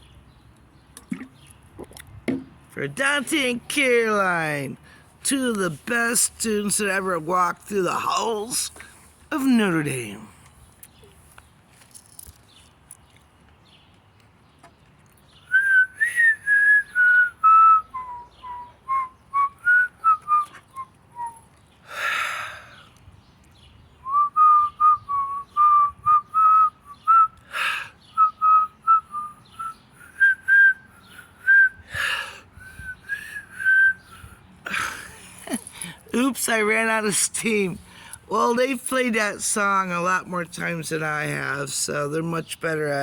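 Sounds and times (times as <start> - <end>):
woman whistling a tune: 15.5 - 21.4, 24.0 - 27.6, 28.2 - 34.4
person breathing: 37.8 - 38.3.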